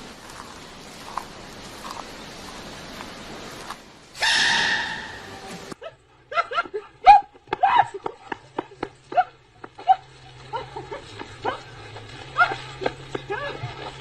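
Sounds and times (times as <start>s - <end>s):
animal high-pitched calls: 4.2s - 5.4s.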